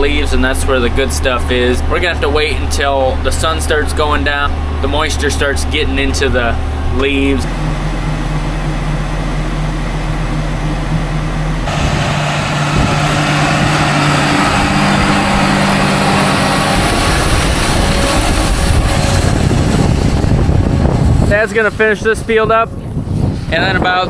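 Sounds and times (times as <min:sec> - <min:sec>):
tractor and baling machinery running: 0:00.0 - 0:24.0
steady machine hum: 0:04.5 - 0:22.0
loud noisy machine: 0:11.6 - 0:22.3.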